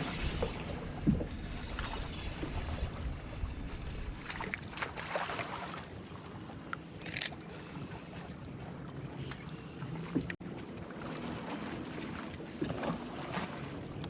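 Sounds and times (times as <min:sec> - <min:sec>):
wind and water noise: 0:00.0 - 0:14.0.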